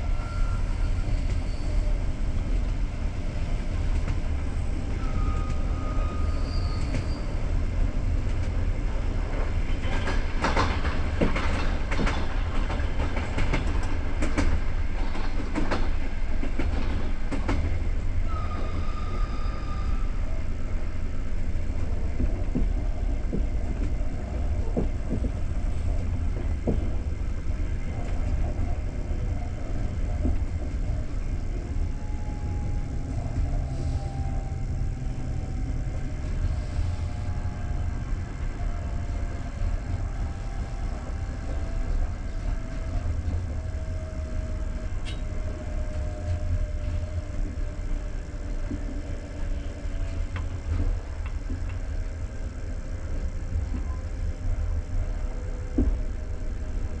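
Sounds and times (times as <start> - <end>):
clicks and knocks of train: 0.0 - 57.0
train rumble inside coach: 0.0 - 57.0
high whistle-like tones: 5.0 - 7.4, 18.2 - 20.3.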